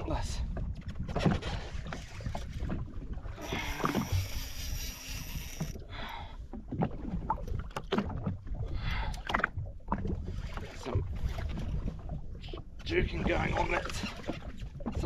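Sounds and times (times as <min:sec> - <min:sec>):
water slapping against a hull: 0:00.0 - 0:15.0.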